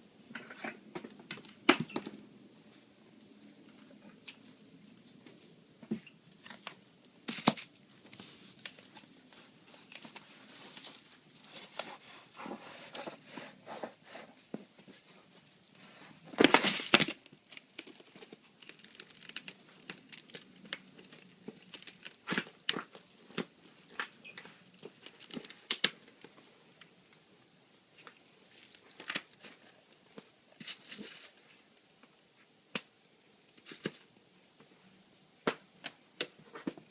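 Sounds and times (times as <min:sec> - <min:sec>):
packing materials crinkling: 0:16.2 - 0:26.3, 0:28.0 - 0:31.6
loud ripping: 0:16.4 - 0:22.4.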